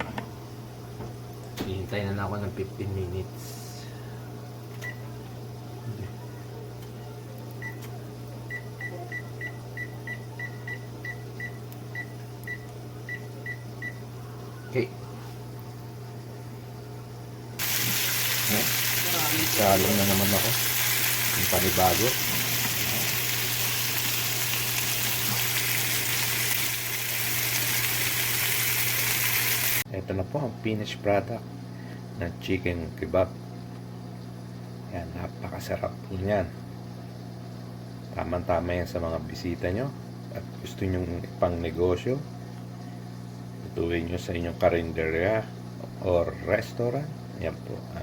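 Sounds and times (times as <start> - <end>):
food sizzling in a pan: 17.6 - 29.9.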